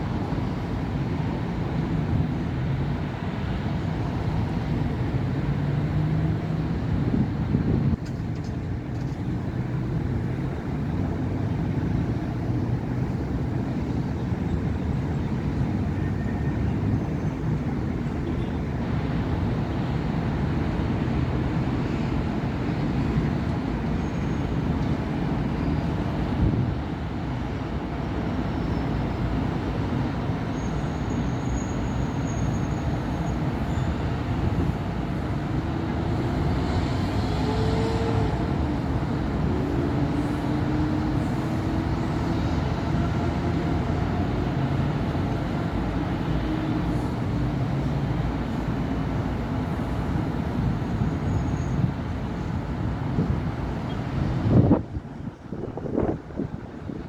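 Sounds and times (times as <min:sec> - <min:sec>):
road traffic passing: 0:00.0 - 0:57.0.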